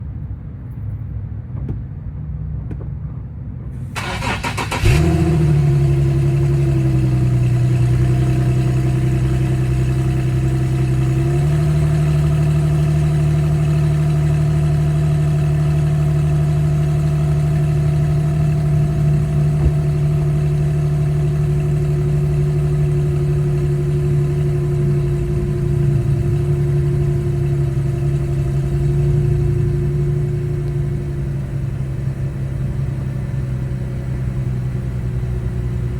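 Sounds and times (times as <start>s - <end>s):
car engine idling: 3.8s - 35.9s
starter motor cranking: 4.0s - 5.2s.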